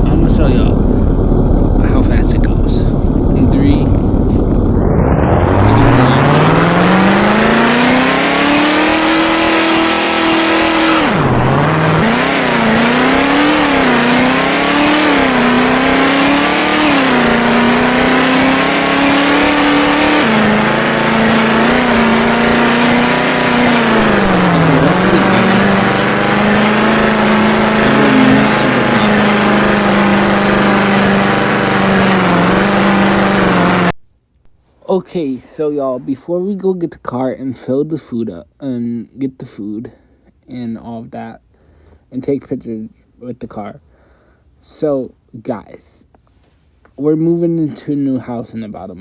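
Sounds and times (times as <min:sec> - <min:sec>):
car engine accelerating hard: 0:00.0 - 0:34.0.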